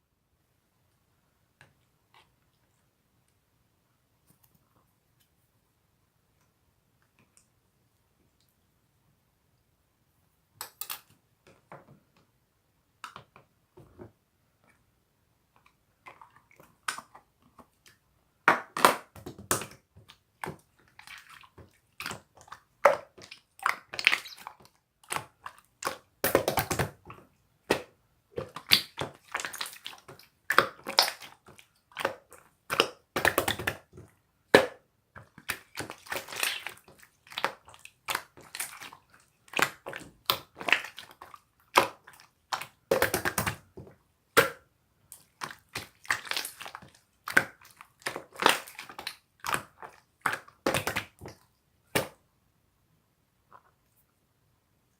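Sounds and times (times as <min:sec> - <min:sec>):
slime squished by hand: 0:45.2 - 0:52.2.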